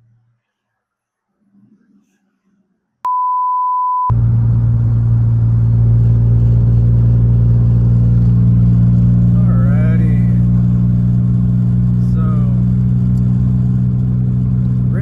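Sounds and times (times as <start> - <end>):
steady beep tone: 3.1 - 4.1
car engine droning: 4.1 - 15.0.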